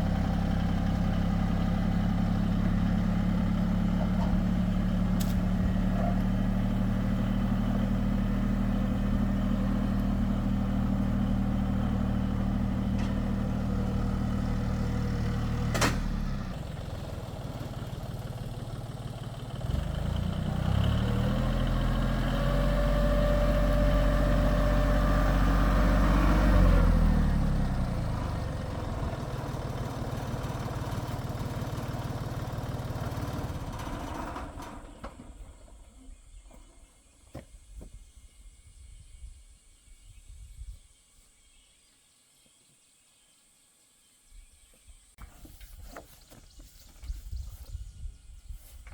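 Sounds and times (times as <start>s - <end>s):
engine speeding up and slowing: 0.0s - 35.0s
tractor engine running: 0.0s - 36.8s
sharp click: 5.2s - 5.4s.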